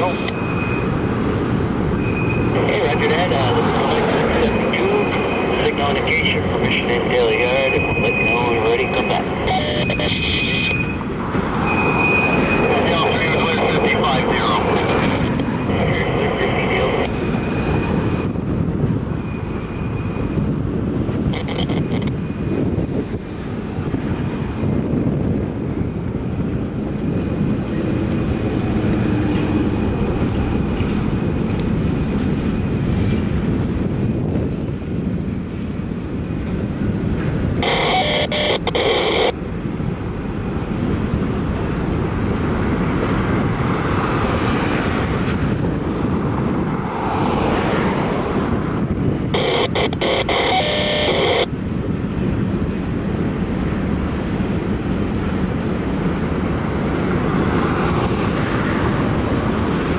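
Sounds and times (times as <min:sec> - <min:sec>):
freight train wheels rumbling: 0:00.0 - 0:37.7, 0:51.5 - 0:59.9.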